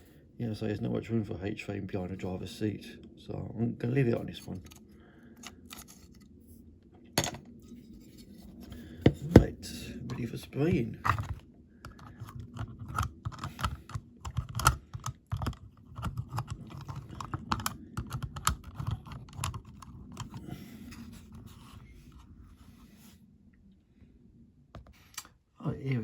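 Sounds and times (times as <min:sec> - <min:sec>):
small clicks and taps of handling: 0:11.1 - 0:20.4.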